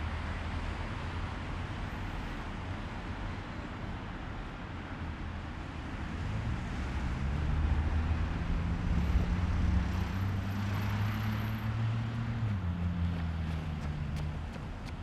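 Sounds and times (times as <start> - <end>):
road and wind noise: 0.0 - 15.0
vehicle engine hum: 5.7 - 15.0.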